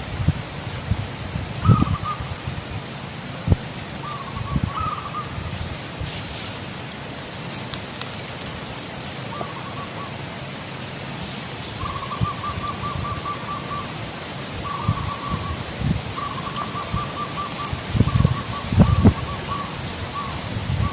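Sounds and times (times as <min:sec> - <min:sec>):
steady outdoor hiss: 0:00.0 - 0:20.9
dove cooing: 0:01.6 - 0:02.4, 0:04.0 - 0:05.5, 0:09.3 - 0:10.3, 0:11.8 - 0:20.9.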